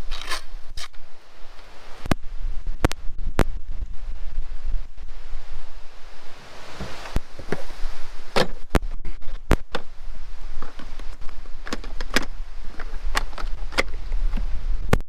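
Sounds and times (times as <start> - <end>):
wind rumble on microphone: 0.0 - 15.0
gear knocking and clacking: 10.6 - 15.0.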